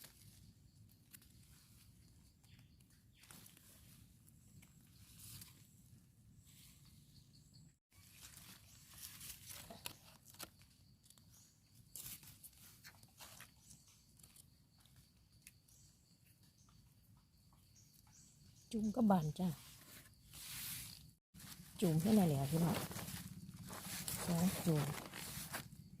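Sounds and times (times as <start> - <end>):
rustling through leaf litter: 7.9 - 10.7, 19.6 - 25.8.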